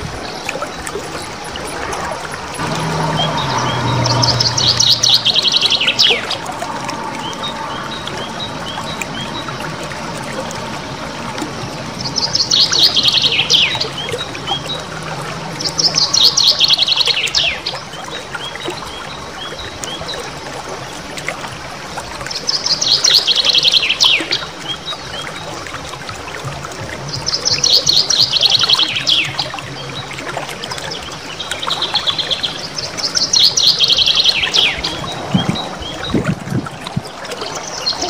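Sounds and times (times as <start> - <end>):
bird chirps: 2.6 - 11.2, 12.0 - 18.5
songbird rolling trills: 2.6 - 17.7.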